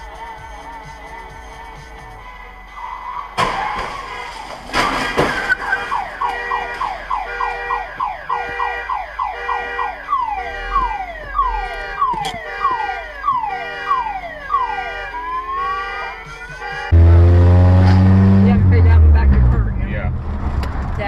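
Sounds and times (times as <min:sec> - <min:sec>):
car alarm whooping: 0:02.7 - 0:18.0.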